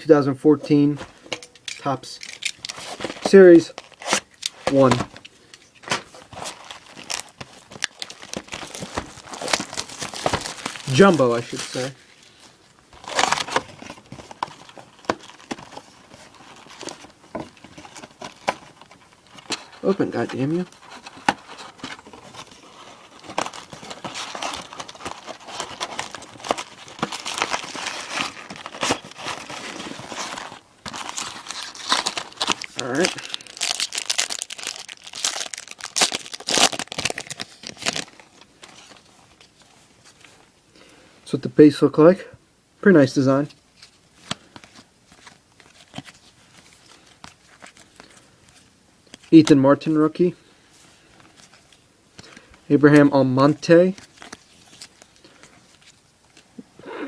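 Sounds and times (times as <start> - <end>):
plastic wrap crinkling: 5.8 - 40.3, 53.4 - 56.5.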